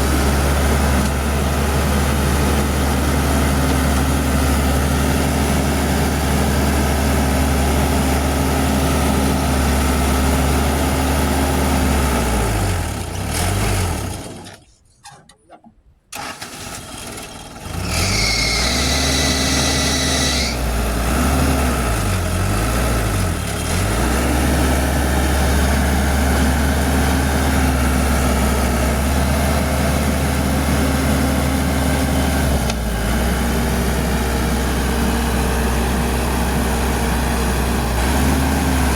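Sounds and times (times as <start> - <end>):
diesel engines running: 0.0 - 15.2, 16.2 - 38.9
high squeal: 17.8 - 20.6.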